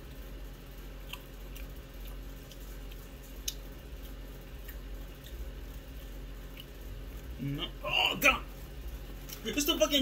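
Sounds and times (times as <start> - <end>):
low steady hum: 0.0 - 10.0
wet mouth clicks chewing: 1.0 - 6.8.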